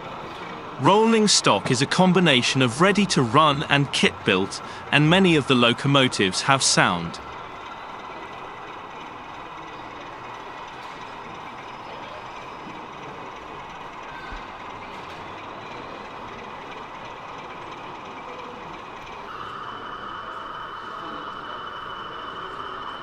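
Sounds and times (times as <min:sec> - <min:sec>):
exhibition hall hum: 0:00.0 - 0:23.0
model locomotive engine sound: 0:00.0 - 0:23.0
higher steady tone: 0:00.8 - 0:07.3.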